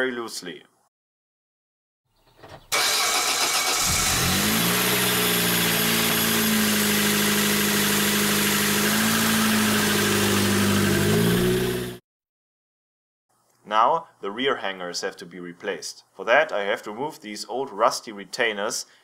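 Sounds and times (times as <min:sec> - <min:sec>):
car engine starting and idling: 0:02.6 - 0:12.0.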